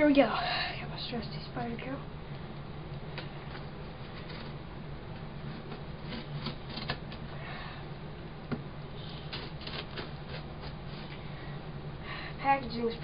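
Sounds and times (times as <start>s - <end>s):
tape and cardboard rasps: 5.4s - 7.2s, 9.0s - 11.2s.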